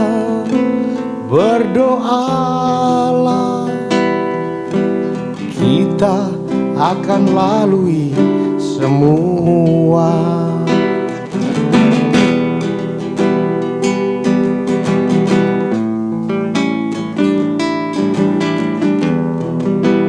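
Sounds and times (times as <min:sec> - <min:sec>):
person singing: 0:00.0 - 0:15.4
acoustic guitar chords: 0:00.0 - 0:20.0.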